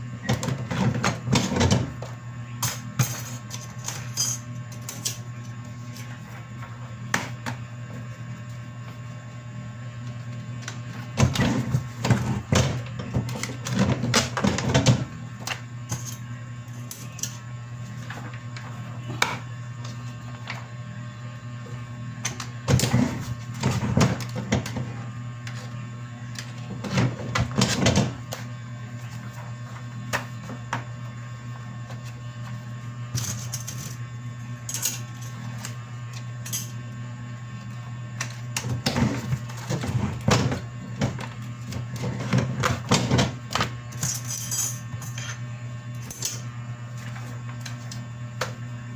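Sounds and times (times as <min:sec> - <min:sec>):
printing machine hum: 0:00.0 - 0:48.9.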